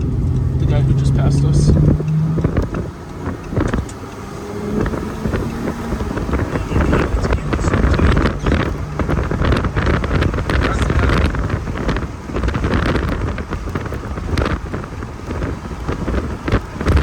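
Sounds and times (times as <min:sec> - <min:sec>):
car engine rumble: 0:00.0 - 0:17.0
wind buffeting microphone: 0:00.0 - 0:17.0.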